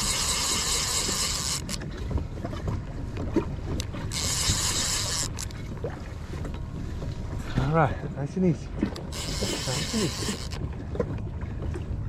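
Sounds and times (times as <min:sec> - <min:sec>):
fishing reel drag buzzing: 0:00.0 - 0:01.8, 0:04.1 - 0:05.5, 0:09.1 - 0:10.6.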